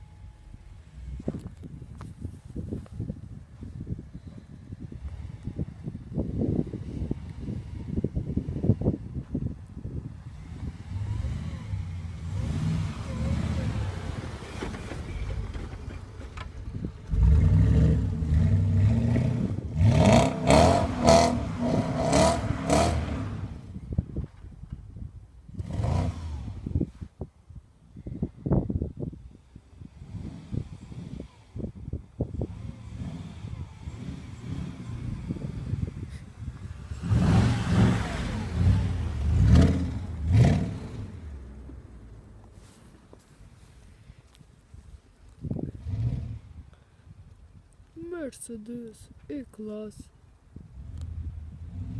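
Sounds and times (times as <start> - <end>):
car engine revving hard: 10.3 - 14.5, 17.1 - 23.7, 25.6 - 26.7, 32.4 - 35.6, 36.8 - 41.3.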